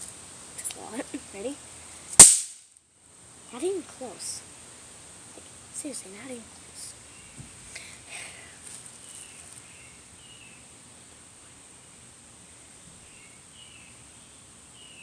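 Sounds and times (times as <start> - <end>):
faint crackles: 7.7 - 9.7.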